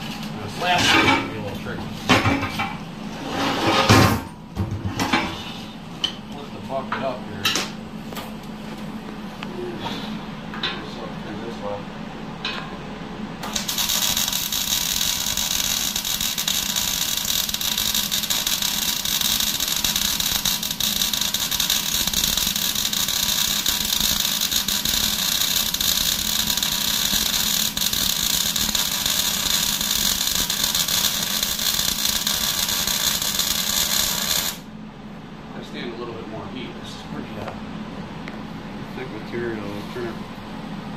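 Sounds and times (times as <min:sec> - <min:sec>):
welder arc crackling hiss: 0:13.4 - 0:34.7.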